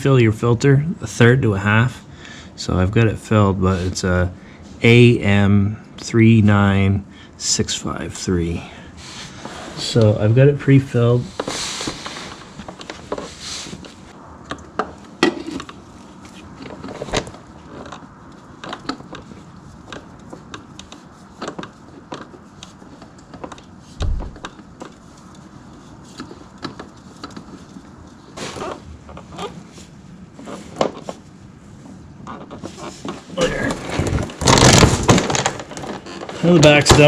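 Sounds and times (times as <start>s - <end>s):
tools and parts clicking and knocking: 16.6s - 25.4s
dull thump: 24.0s - 24.4s.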